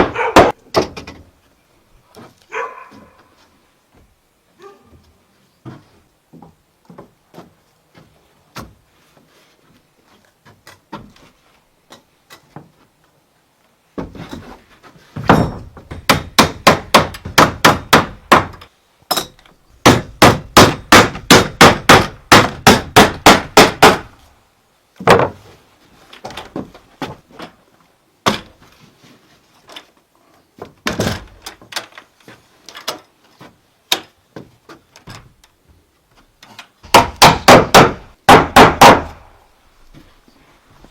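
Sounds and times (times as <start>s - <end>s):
hammer striking wood: 0.0s - 1.1s, 15.2s - 24.1s, 36.8s - 39.3s.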